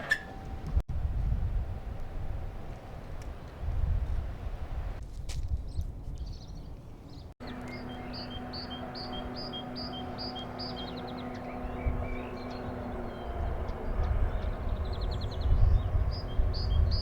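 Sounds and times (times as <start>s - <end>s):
wind rumble on microphone: 0.0s - 17.0s
songbird singing with trill: 5.7s - 17.0s
low hum: 7.4s - 17.0s.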